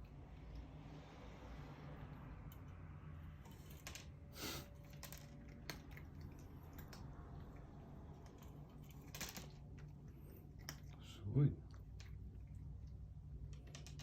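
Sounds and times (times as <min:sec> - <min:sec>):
low steady hum: 0:00.0 - 0:14.0
cats chewing food: 0:02.0 - 0:14.0.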